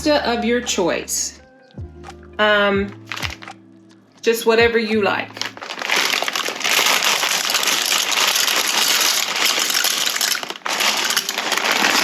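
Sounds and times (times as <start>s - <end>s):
plastic bag crinkling: 3.0s - 3.6s, 5.3s - 12.0s
dry pasta pouring into pot: 5.4s - 12.0s.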